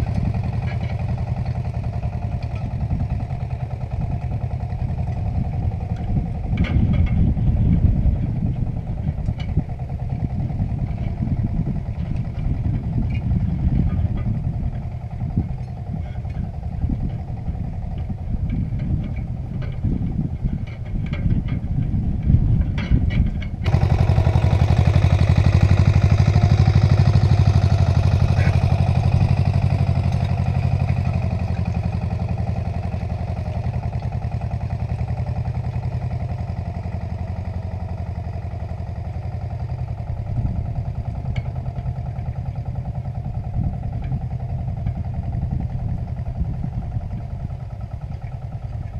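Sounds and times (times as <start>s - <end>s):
tractor engine clattering: 0.0s - 48.9s.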